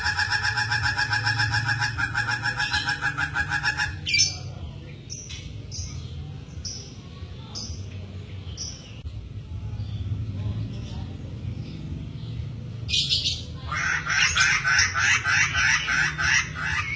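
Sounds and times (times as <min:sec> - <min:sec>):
bird pulsing trill: 0:00.0 - 0:04.4.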